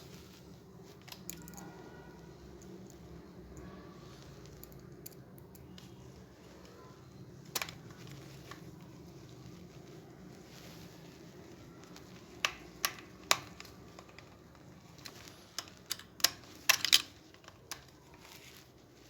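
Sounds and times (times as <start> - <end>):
plastic parts clicking: 7.5 - 8.7, 11.9 - 18.4.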